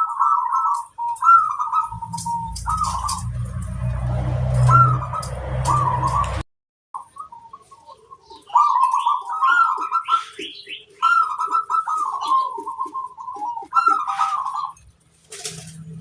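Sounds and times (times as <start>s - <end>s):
doves cooing: 0.0s - 6.4s, 7.0s - 16.0s
higher bird chirps: 0.0s - 6.4s.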